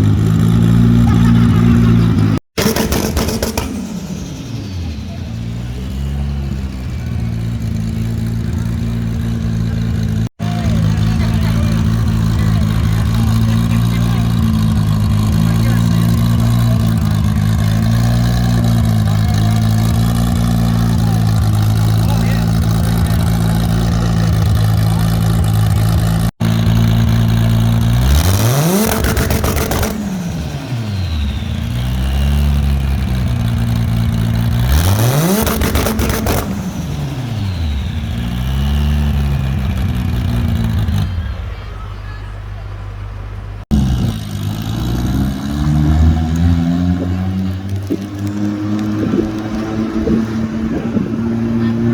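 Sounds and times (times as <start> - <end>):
race car engine idling: 0.0 - 51.9
turbo whistle: 29.0 - 32.5, 35.7 - 42.4.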